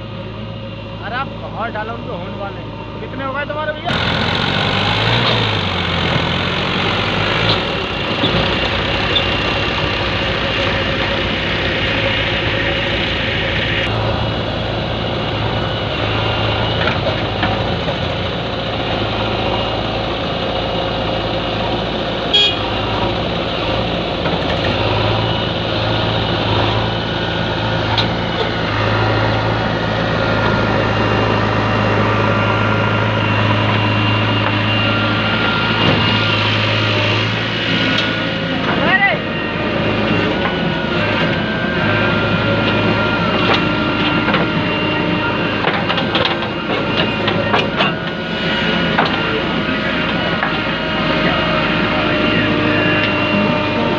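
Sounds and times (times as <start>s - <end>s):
diesel engines running: 0.0s - 53.9s.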